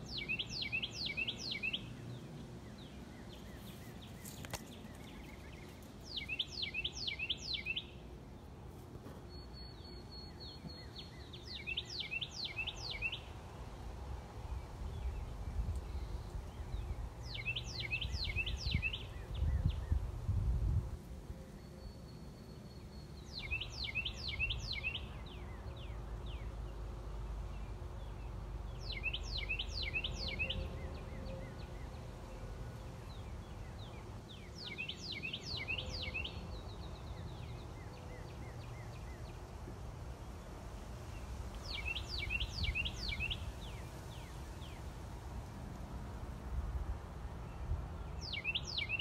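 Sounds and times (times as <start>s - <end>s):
songbird singing: 0.0s - 49.0s.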